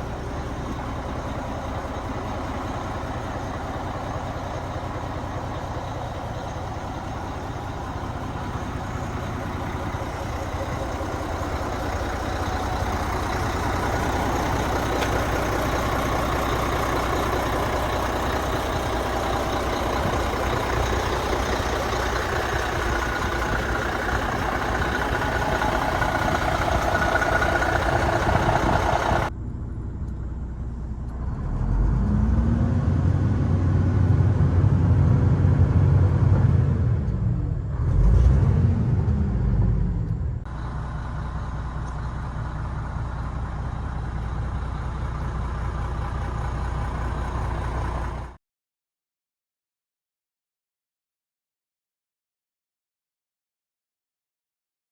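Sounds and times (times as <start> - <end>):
diesel engine idling: 0.0 - 32.3, 39.0 - 48.4
deep engine rumble: 0.0 - 48.4.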